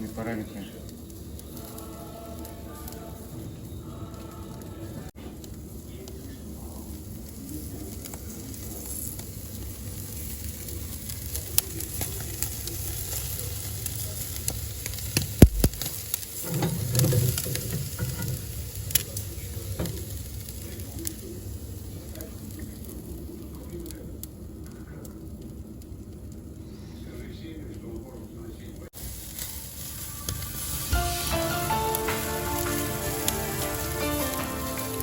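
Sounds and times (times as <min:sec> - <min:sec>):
meat sizzling on a grill: 0:00.0 - 0:27.3, 0:28.9 - 0:35.0
sharp crackling clicks: 0:07.9 - 0:18.0.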